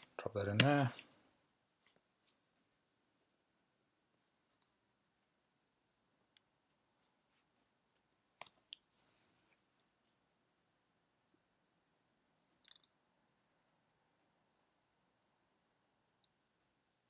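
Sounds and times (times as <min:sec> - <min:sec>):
faint sharp clicks: 0:12.5 - 0:13.0.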